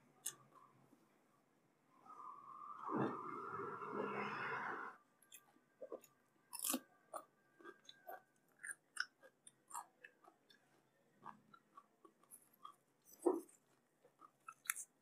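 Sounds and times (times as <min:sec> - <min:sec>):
chewing cucumber crunches: 0:05.3 - 0:15.0.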